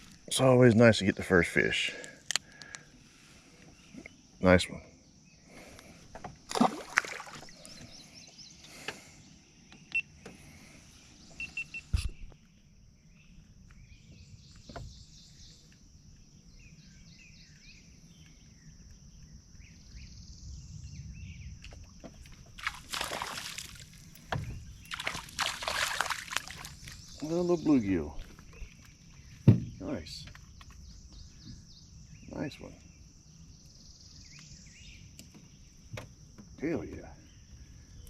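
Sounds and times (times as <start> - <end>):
rush of water: 6.5 - 7.6, 22.2 - 27.0.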